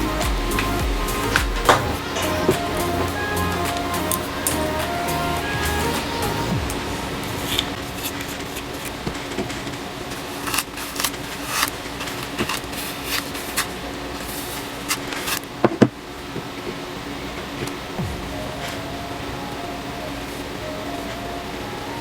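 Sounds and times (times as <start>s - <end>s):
steady room hum: 0.0s - 22.0s
hair rustling and clicking: 7.3s - 15.6s.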